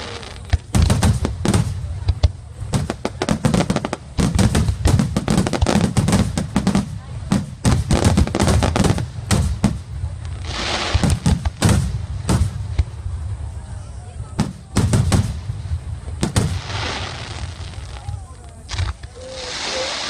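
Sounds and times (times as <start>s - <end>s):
fireworks bangs and crackles: 0.0s - 20.0s
hissing crackle: 0.0s - 20.0s.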